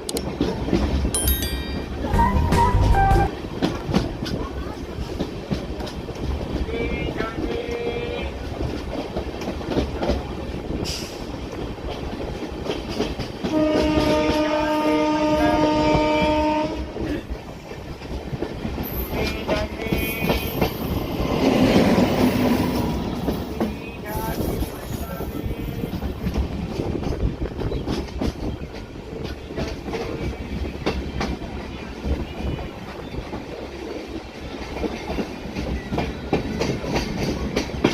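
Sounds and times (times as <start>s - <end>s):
train rumble and wheel clatter: 0.0s - 37.9s
train horn blast: 2.1s - 3.4s, 13.4s - 17.1s.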